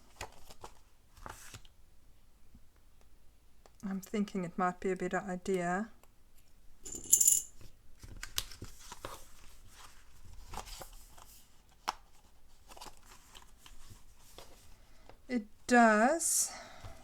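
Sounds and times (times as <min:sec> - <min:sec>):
metallic clink: 0:06.8 - 0:07.6
paper pages shifting and tapping: 0:07.6 - 0:14.6.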